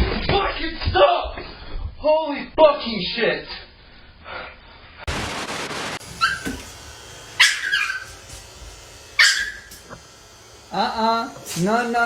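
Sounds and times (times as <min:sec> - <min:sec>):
short rush of noise: 0:05.1 - 0:06.5
dog yelping: 0:06.2 - 0:06.6, 0:07.4 - 0:08.2, 0:09.2 - 0:09.7.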